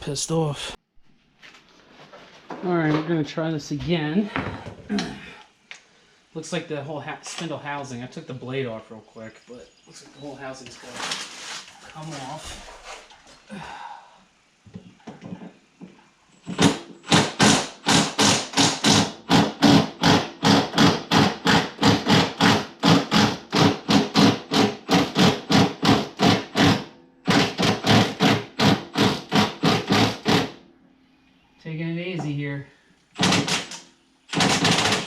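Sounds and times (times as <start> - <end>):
impact wrench hammering: 16.4 - 30.6, 33.2 - 35.0.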